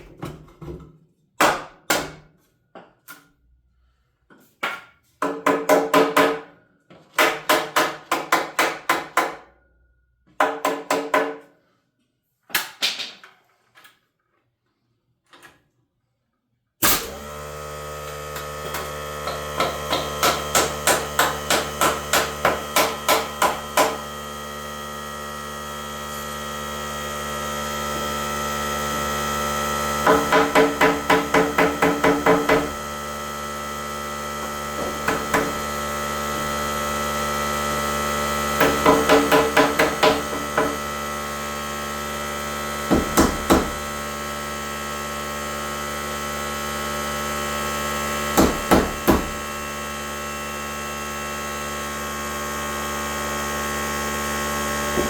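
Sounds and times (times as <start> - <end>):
hammer driving nails into wood: 1.4 - 2.3, 4.6 - 6.5, 7.1 - 9.5, 10.3 - 11.4, 18.7 - 24.1, 30.0 - 32.8, 34.8 - 35.6, 38.6 - 40.8, 42.9 - 43.8, 48.4 - 49.4.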